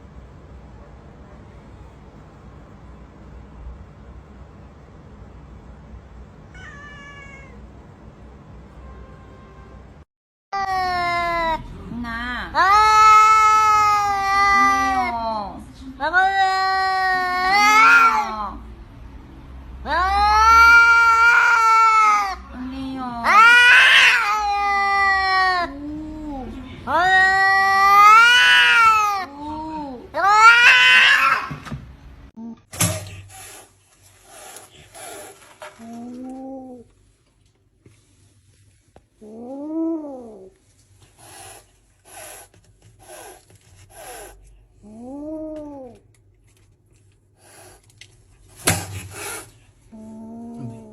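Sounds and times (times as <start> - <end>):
angry cat yowling: 6.5 - 7.6, 12.6 - 15.2, 16.2 - 18.4, 19.9 - 22.5, 23.2 - 25.7, 27.0 - 29.3, 30.2 - 31.6
cat hissing: 6.5 - 7.6, 17.3 - 18.4, 20.1 - 22.5, 23.2 - 25.1, 32.9 - 35.9, 41.0 - 45.0, 47.4 - 47.9, 48.5 - 50.9.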